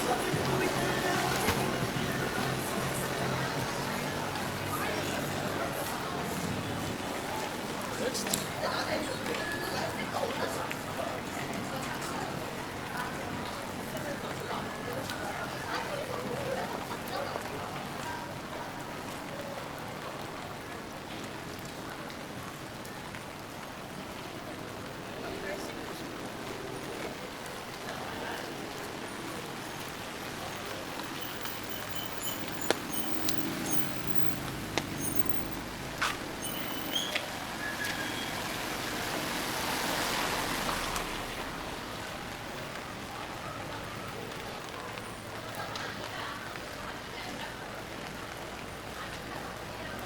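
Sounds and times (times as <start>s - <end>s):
rain falling on street: 0.0s - 50.0s
raindrops ticking: 18.8s - 50.0s.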